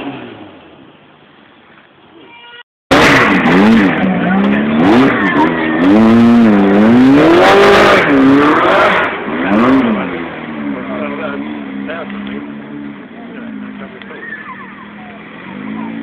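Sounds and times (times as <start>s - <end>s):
car engine revving hard: 2.9s - 14.0s, 14.8s - 16.0s
faint engine: 2.9s - 16.0s.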